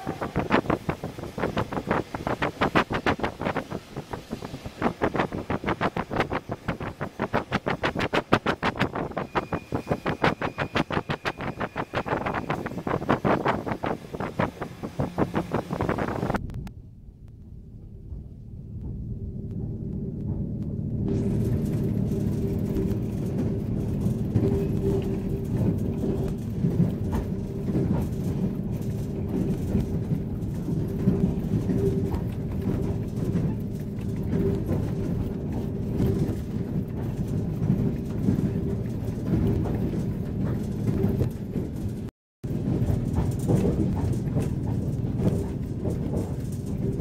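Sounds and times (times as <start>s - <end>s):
train rumbling: 0.0s - 47.0s
running gear clicks and knocks: 21.2s - 47.0s.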